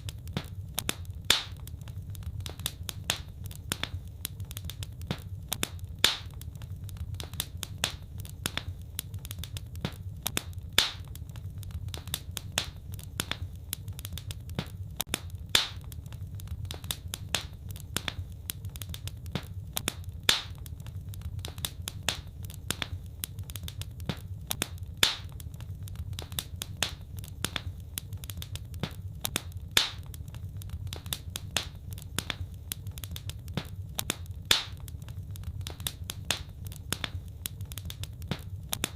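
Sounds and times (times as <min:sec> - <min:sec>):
loud fire pop: 0:00.0 - 0:01.6, 0:05.0 - 0:06.3, 0:09.8 - 0:11.1, 0:14.5 - 0:15.9, 0:19.0 - 0:20.7, 0:23.7 - 0:25.4, 0:28.4 - 0:30.2, 0:33.2 - 0:34.8
low rumble of burning: 0:00.0 - 0:38.9
wood fire crackling: 0:00.0 - 0:38.9.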